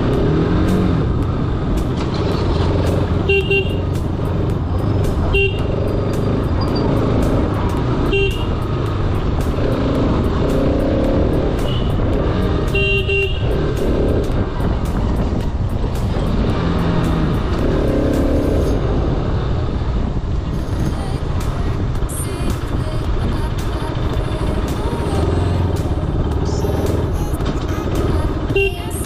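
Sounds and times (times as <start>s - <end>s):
motorcycle engine running at low speed: 0.0s - 29.0s
road and wind noise: 0.0s - 29.0s
vehicle horns honking: 3.2s - 4.1s, 5.2s - 7.0s, 8.0s - 8.8s, 11.6s - 14.0s, 28.4s - 29.0s.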